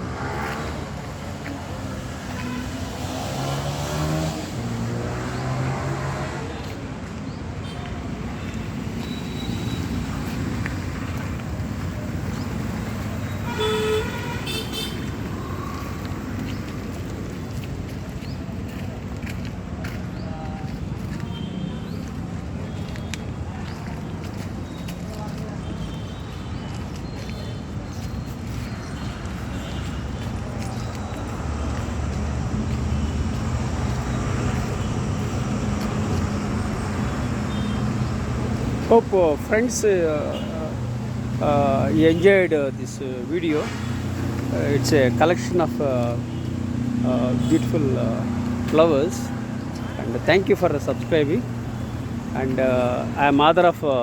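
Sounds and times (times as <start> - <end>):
street traffic: 0.0 - 54.0
vehicle horn toot: 2.3 - 2.9, 13.3 - 15.1
engine rumbling: 29.0 - 54.0.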